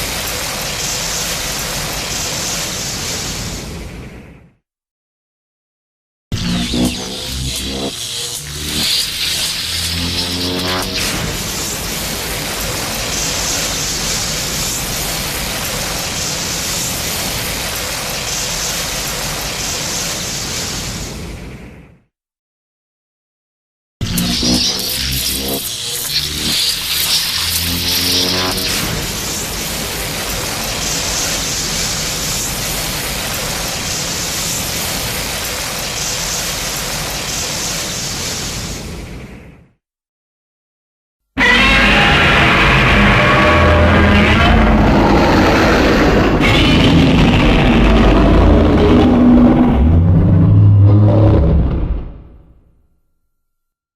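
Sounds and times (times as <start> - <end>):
steady rushing hiss: 0.0 - 3.9, 6.6 - 21.6, 24.0 - 39.4
low rumble: 42.3 - 52.6.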